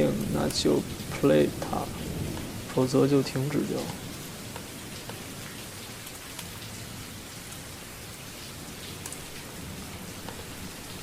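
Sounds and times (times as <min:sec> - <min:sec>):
rainfall hiss: 0:00.0 - 0:11.0.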